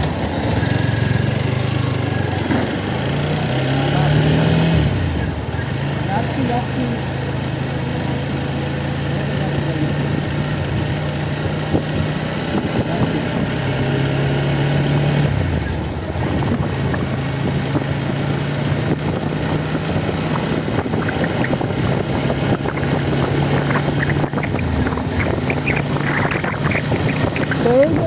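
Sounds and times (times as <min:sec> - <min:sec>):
motorcycle engine running: 0:00.0 - 0:28.0
wind noise on microphone: 0:10.6 - 0:28.0.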